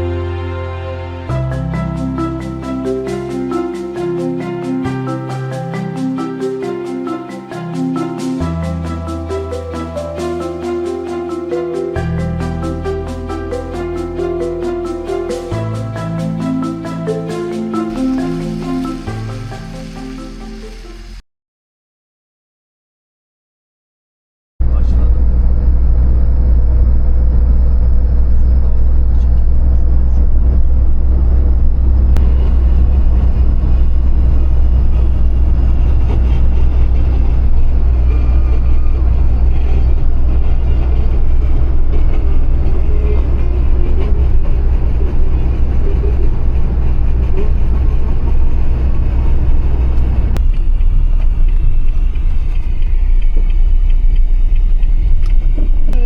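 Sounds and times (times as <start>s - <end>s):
engine and road drone: 24.6s - 56.0s.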